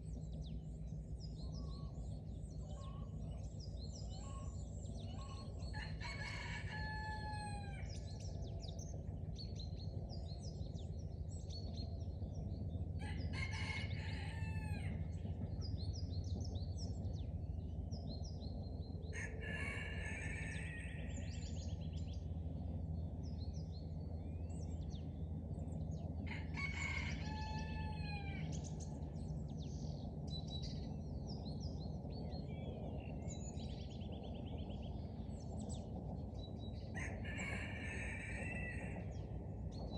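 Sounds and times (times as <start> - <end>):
low background rumble: 0.0 - 39.9
songbirds chirping: 0.0 - 39.9
rooster crowing: 5.2 - 8.0, 13.0 - 15.0, 19.2 - 21.2, 26.3 - 28.5, 36.9 - 39.0.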